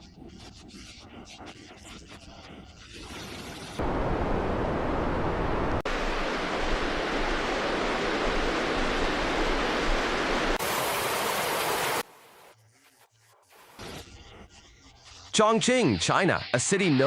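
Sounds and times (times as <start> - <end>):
rushing floodwater: 3.8 - 12.1.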